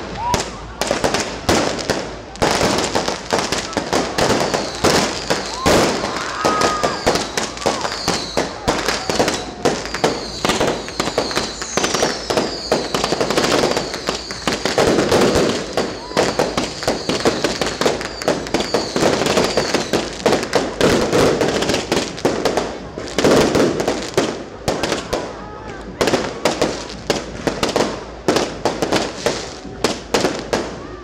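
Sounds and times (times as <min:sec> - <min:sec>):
fireworks bangs and crackling: 0:00.0 - 0:31.0
people's voices: 0:00.0 - 0:31.0
whistling firework shells: 0:02.8 - 0:21.9.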